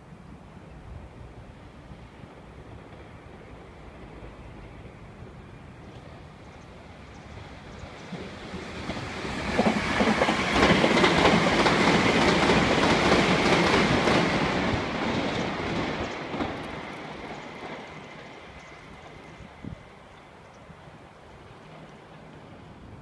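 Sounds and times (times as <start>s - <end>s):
high-pitched train whine: 1.2s - 23.0s
train wheels clattering over rail joints: 8.0s - 19.3s.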